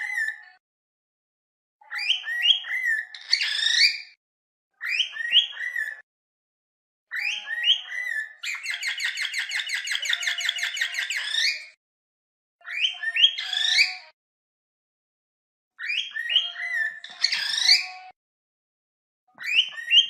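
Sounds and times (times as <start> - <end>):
cockatiel whistling: 1.9 - 4.1, 4.8 - 5.9, 7.1 - 11.6, 15.8 - 17.9, 19.4 - 20.0.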